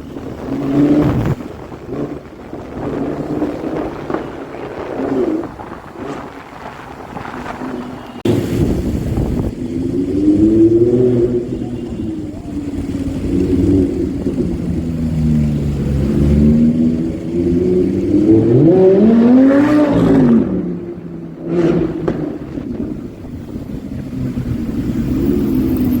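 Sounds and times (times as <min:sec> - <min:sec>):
car engine revving: 0:00.0 - 0:26.0
exhaust pop: 0:18.0 - 0:25.2.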